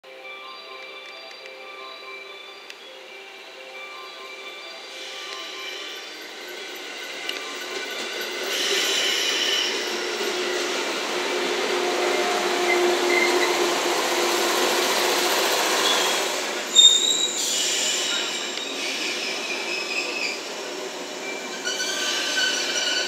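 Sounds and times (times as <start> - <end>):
train wheels rumbling: 5.0 - 23.0
wheel and brake squeal: 7.4 - 10.7, 15.8 - 20.5, 21.2 - 23.0
loud brake screech: 8.2 - 10.7, 15.8 - 20.5, 21.3 - 23.0.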